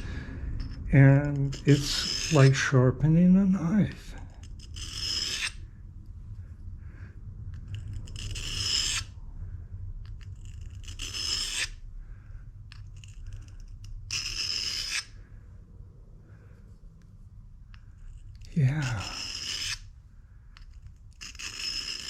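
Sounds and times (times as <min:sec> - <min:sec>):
steel scraping on sharpening stone: 0:00.6 - 0:02.7, 0:04.4 - 0:05.6, 0:07.7 - 0:09.1, 0:10.2 - 0:11.8, 0:12.7 - 0:15.1, 0:18.1 - 0:19.9, 0:20.6 - 0:22.0.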